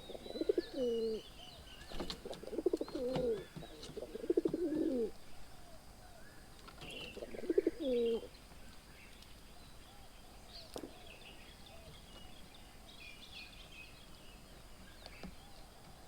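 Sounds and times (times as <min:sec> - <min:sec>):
dove cooing: 0:00.0 - 0:08.3
faint small bird chirps: 0:00.0 - 0:16.0.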